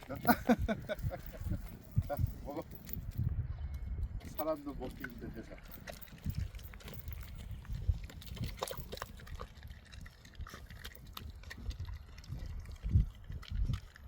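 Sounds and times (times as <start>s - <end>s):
puppies chewing wetly: 5.8s - 14.0s.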